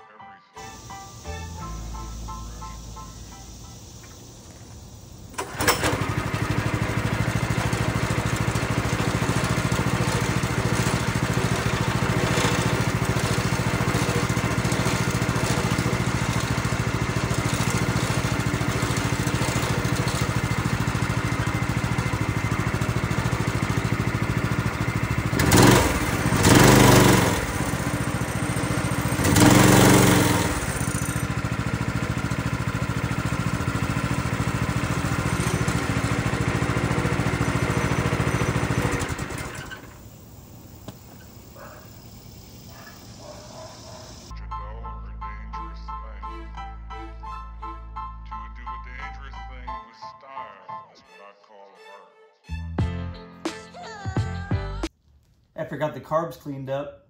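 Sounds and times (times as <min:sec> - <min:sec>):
go-kart engine idling: 0:01.1 - 0:44.3
engine revving: 0:05.3 - 0:40.1.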